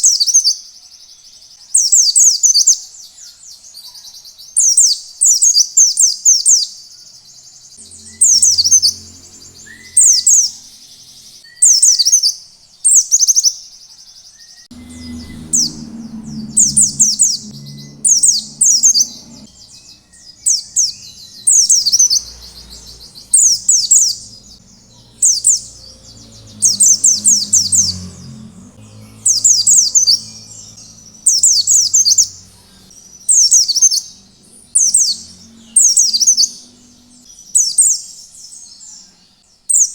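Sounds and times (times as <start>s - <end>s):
bird singing rapid high notes: 7.7s - 12.3s, 14.7s - 38.2s.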